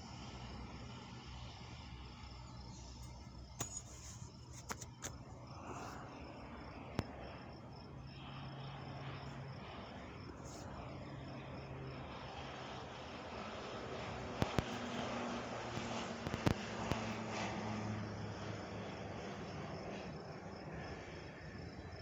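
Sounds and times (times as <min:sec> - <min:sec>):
insects chirping: 0:00.0 - 0:22.0
low steady hum: 0:00.0 - 0:22.0.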